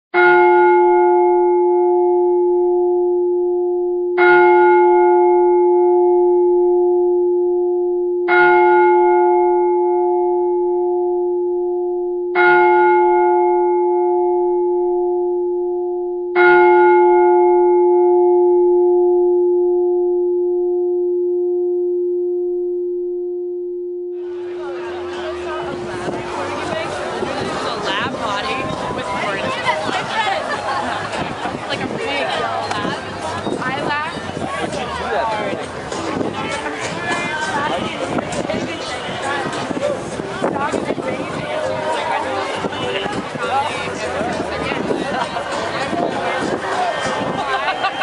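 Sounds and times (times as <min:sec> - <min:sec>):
bell ringing: 0:24.2 - 0:32.7.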